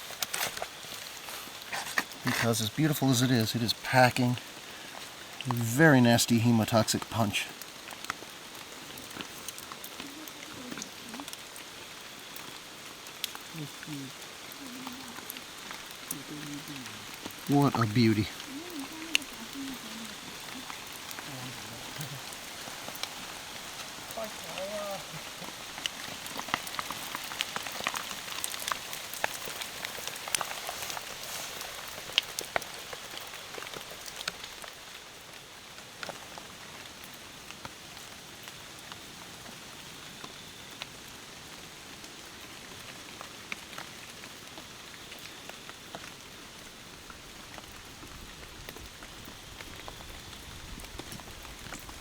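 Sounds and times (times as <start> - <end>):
raindrops tapping close by: 0.0 - 52.0
steady rain hiss: 0.0 - 52.0.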